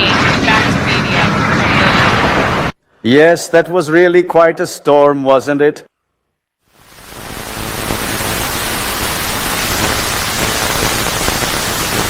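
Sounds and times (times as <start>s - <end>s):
heavy rain downpour: 6.7s - 12.0s.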